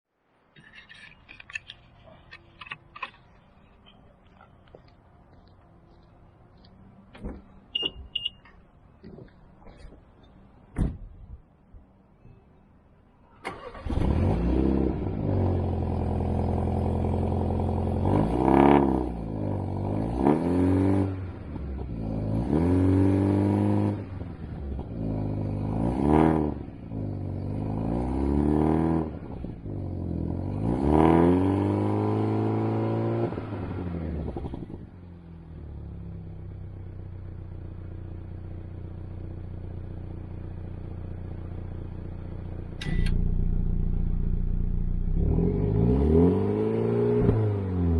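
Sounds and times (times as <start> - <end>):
car engine starting and revving: 13.4 - 47.9.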